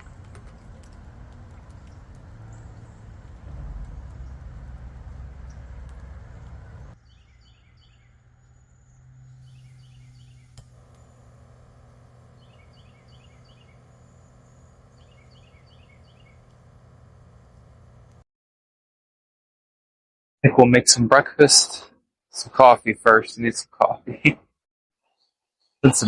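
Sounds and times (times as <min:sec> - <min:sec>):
low rumble: 0:00.0 - 0:07.0
songbird singing: 0:00.0 - 0:18.2
steady low hum: 0:00.0 - 0:18.2.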